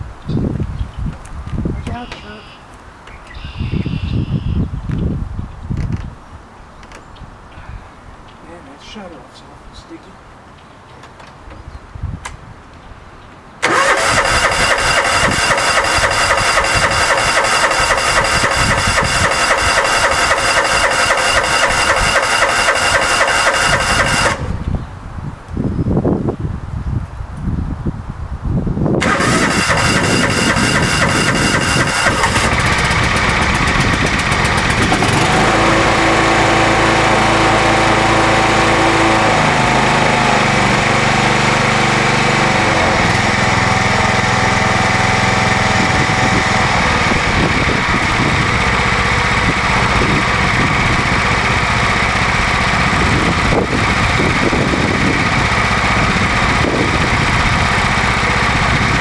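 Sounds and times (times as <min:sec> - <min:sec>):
lawn tractor engine starting and running: 0:13.6 - 0:25.0, 0:29.0 - 0:59.0.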